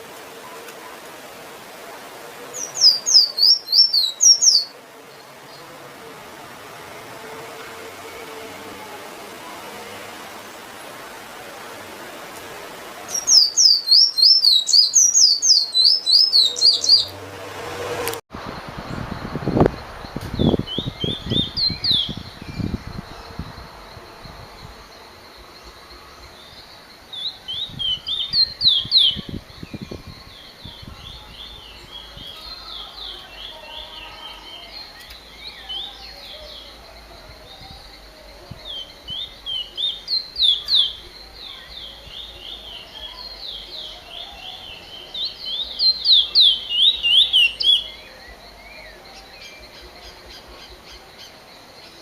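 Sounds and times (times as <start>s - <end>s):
bird twittering: 2.5s - 4.7s, 13.1s - 17.2s, 39.1s - 48.1s
finch chirping: 2.5s - 4.7s, 13.1s - 17.2s.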